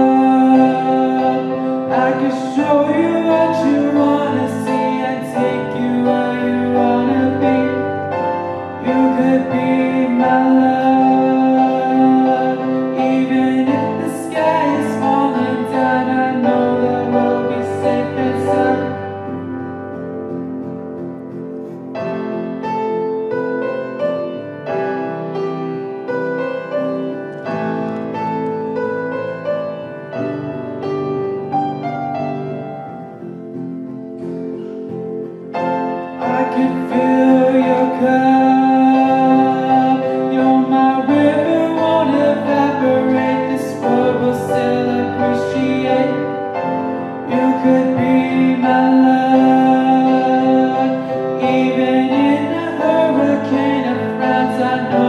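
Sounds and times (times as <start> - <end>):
boy singing pop song: 0.0 - 19.8, 36.2 - 55.0
guitar accompaniment: 0.0 - 55.0.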